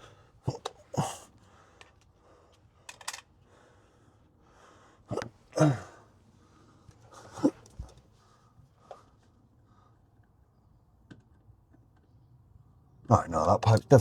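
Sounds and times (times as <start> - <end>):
man grunting with effort: 0.5 - 1.3, 5.1 - 6.0
small clicks and taps of parts: 1.8 - 3.3, 11.0 - 12.2.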